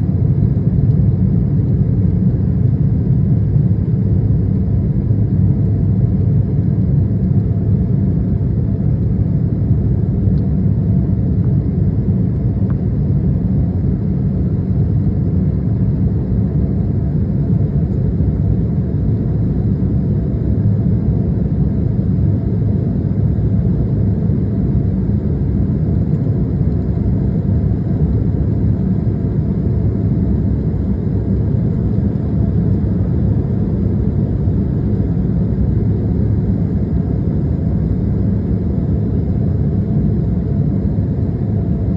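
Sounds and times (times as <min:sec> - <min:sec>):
jet engines rumbling in cabin: 0:00.0 - 0:41.9.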